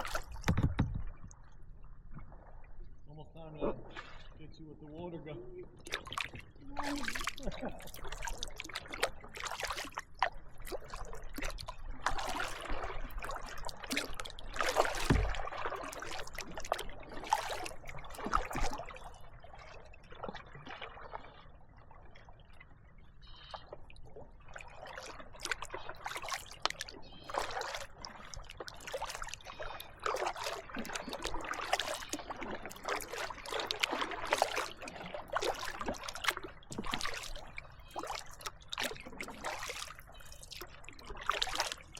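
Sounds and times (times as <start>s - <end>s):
paddle strokes in water: 0.0s - 2.9s, 3.6s - 4.5s, 5.6s - 41.9s
water dripping off paddle: 5.8s - 19.2s, 24.6s - 41.9s.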